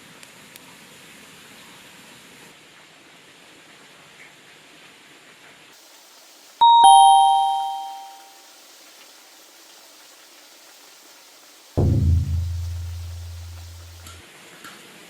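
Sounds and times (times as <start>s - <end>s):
faint steady hiss: 5.8s - 14.2s
two-note ding-dong chime: 6.6s - 8.3s, 11.8s - 13.7s.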